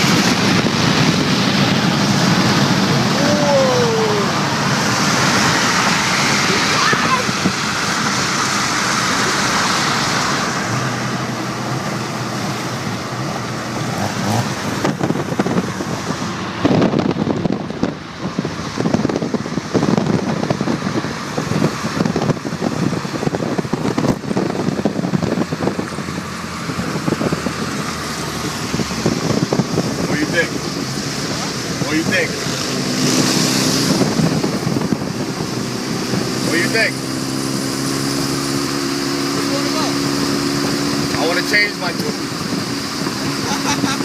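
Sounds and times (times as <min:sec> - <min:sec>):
car engine at speed: 0:00.0 - 0:44.0
wind noise: 0:00.0 - 0:44.0.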